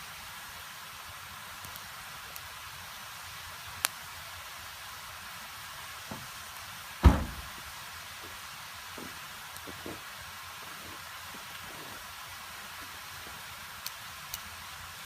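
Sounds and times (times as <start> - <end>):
wood fire hissing: 0.0 - 15.0
heavy thump: 7.0 - 7.6
light knocks: 7.0 - 7.6
sharp crack: 7.0 - 7.6.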